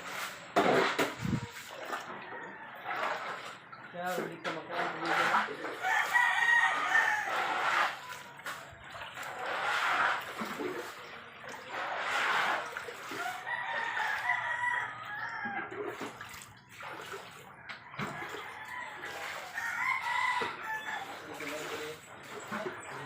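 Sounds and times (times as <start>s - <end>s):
chickens clucking: 0.6s - 3.8s
rooster crowing: 5.8s - 8.1s, 13.2s - 15.7s, 18.0s - 21.4s.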